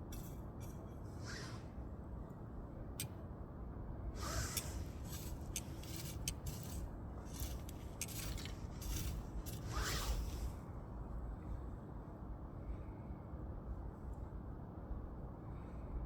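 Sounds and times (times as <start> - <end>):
steady low rumble: 0.0 - 14.2
short hissing spurts: 1.2 - 1.7, 4.2 - 10.6.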